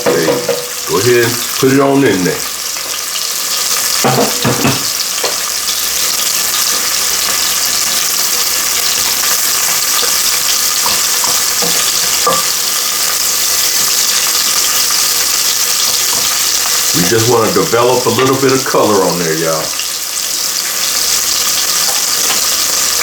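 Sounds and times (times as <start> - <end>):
utensil knocking in pan: 0.0 - 1.4, 3.9 - 5.5, 6.1 - 16.8
chicken sizzling in oil: 0.0 - 23.0.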